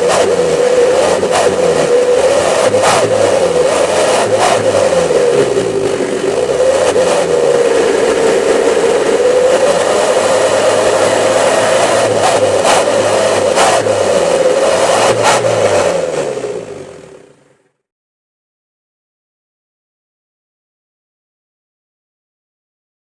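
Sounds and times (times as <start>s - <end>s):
engine revving with howling exhaust: 0.0s - 17.8s.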